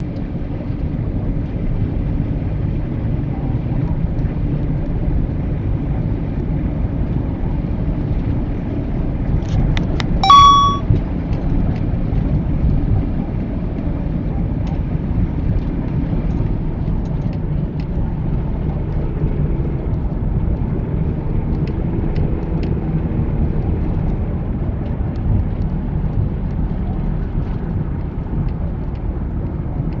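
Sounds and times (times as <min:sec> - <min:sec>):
car road and engine rumble: 0:00.0 - 0:10.1, 0:11.8 - 0:30.0
sharp high-pitched tone: 0:10.2 - 0:10.9.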